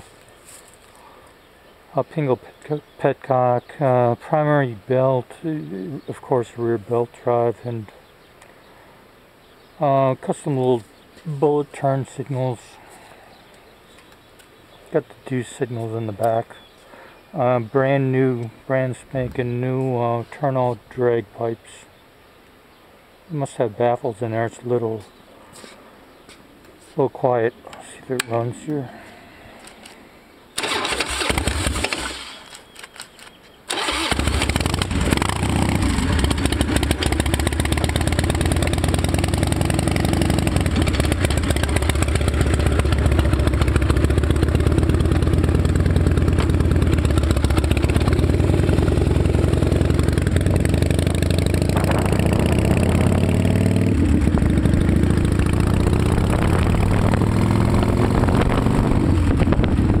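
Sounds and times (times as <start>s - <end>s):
starter motor cranking: 30.6s - 32.9s, 33.7s - 37.3s
motorcycle engine running: 33.8s - 60.0s.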